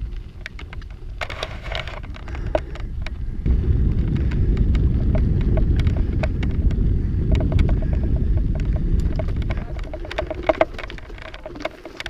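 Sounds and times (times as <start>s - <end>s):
bike clicks and rattles: 0.0s - 12.0s
wind buffeting microphone: 0.0s - 12.0s.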